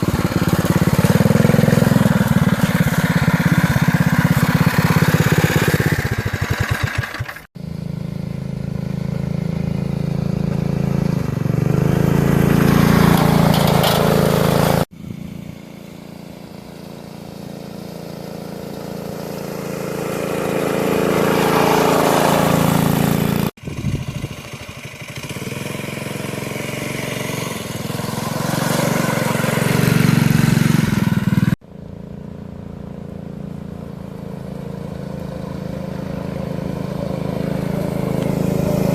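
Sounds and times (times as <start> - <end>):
mini bike engine revving: 0.0 - 38.9.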